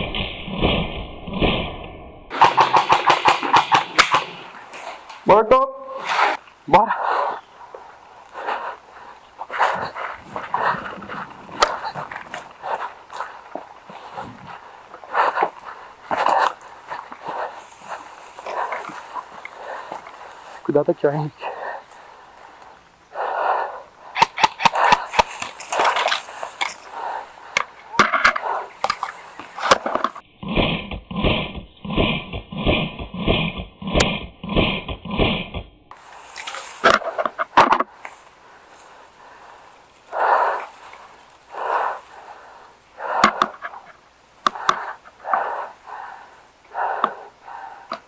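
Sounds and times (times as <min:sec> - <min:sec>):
airsoft guns firing: 0:02.3 - 0:05.2, 0:24.2 - 0:26.0
pellets striking hard surfaces: 0:02.3 - 0:05.3
sharp clicks: 0:02.3 - 0:05.3, 0:24.2 - 0:30.2
person breathing hard: 0:06.0 - 0:30.2, 0:35.9 - 0:48.0.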